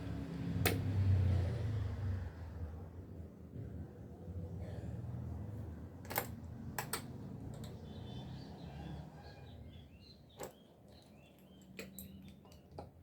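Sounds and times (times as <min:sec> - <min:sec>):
birds chirping faintly: 0:07.4 - 0:13.0.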